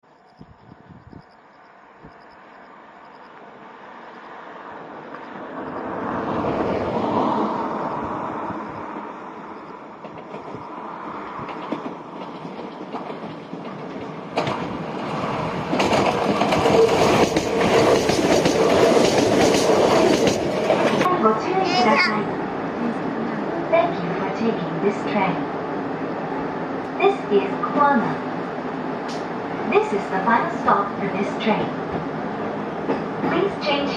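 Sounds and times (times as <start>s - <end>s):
electric train approaching: 0.1s - 33.9s
train wheels clattering over joints: 10.0s - 21.1s.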